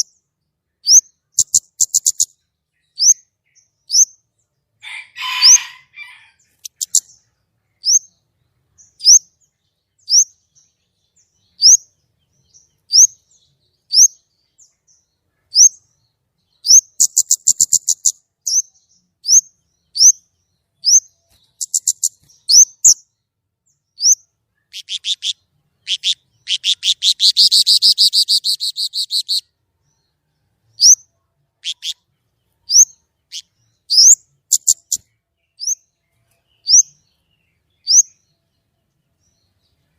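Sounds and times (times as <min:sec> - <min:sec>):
bird singing whistles and trills: 0:00.8 - 0:04.2, 0:07.8 - 0:14.8, 0:15.4 - 0:23.1, 0:23.9 - 0:29.5, 0:32.6 - 0:38.6.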